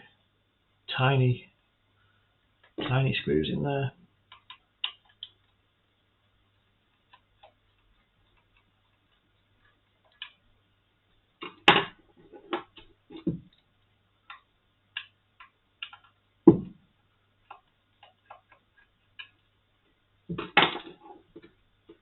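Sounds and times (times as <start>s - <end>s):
heavier knocks: 13.1s - 13.5s, 16.5s - 16.8s.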